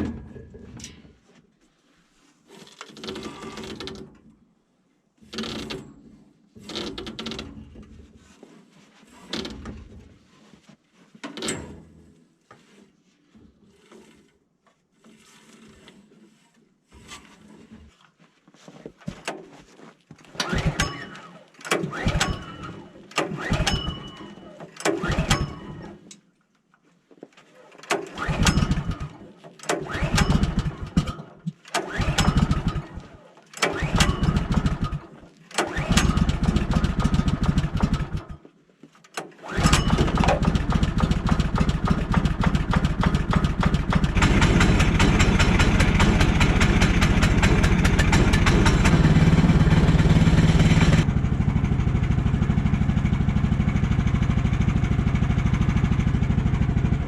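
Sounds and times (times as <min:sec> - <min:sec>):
small gasoline engine starting: 0:20.3 - 0:26.0, 0:27.8 - 0:38.4, 0:39.2 - 0:57.0.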